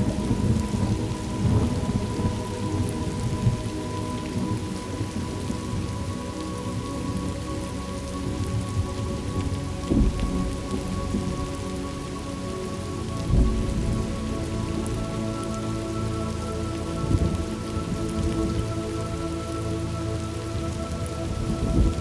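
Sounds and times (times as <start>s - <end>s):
low rolling thunder: 0.0s - 3.7s, 9.9s - 11.4s, 13.3s - 15.0s, 21.3s - 22.0s
steady rain: 0.0s - 22.0s.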